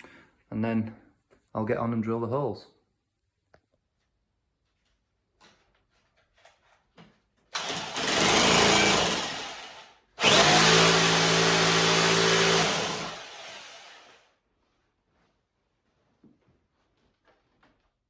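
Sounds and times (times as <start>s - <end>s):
drill boring into wall: 7.5s - 14.3s.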